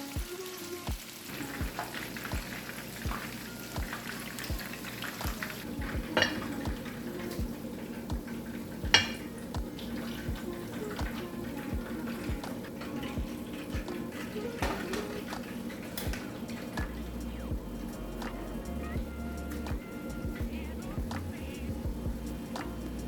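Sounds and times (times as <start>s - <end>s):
background music with steady beat: 0.0s - 23.0s
chicken wings sizzling in oil: 0.0s - 23.0s
kitchenware clinks: 8.9s - 9.3s.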